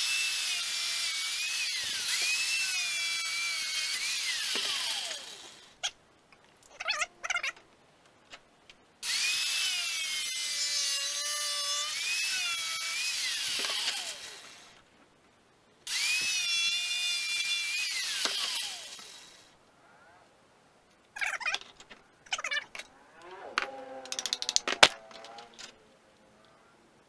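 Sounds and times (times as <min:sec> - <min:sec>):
angle grinder cutting plastic: 0:00.0 - 0:05.8, 0:09.0 - 0:14.8, 0:15.9 - 0:19.5, 0:22.4 - 0:25.8.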